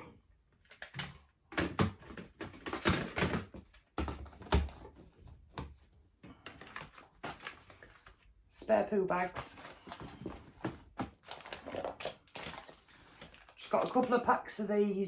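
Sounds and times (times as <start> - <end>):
small items clicking and knocking: 0.6 - 5.0, 9.6 - 14.3.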